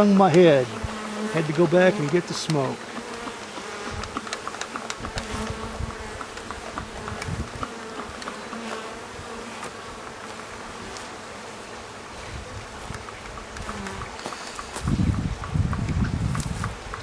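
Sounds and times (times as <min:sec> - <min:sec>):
honeybees buzzing: 0:00.0 - 0:17.0
sharp clicks: 0:01.5 - 0:08.6.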